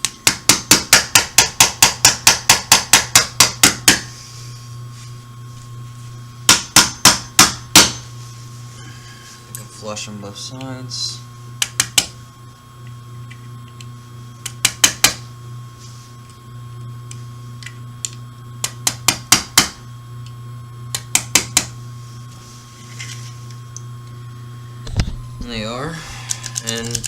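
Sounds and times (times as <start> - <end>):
hammer tapping on metal punch: 0.2 - 4.1, 6.5 - 8.0.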